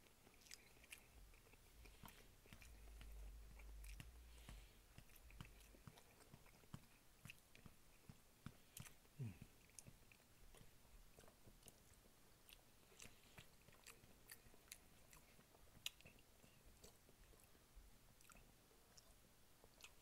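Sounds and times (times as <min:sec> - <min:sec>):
chewing soft food: 0:00.0 - 0:20.0.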